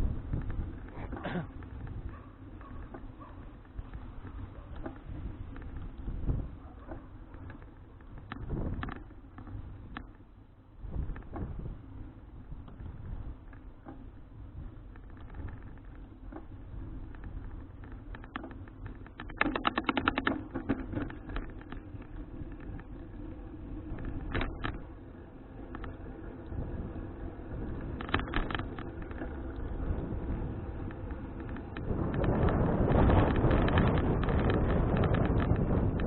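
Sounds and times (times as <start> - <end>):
wind on microphone: 0.0 - 3.0, 3.8 - 9.0, 10.8 - 13.5, 26.4 - 36.0
bicycle clicking and rattling: 0.0 - 36.0
bicycle road rumble: 0.0 - 36.0.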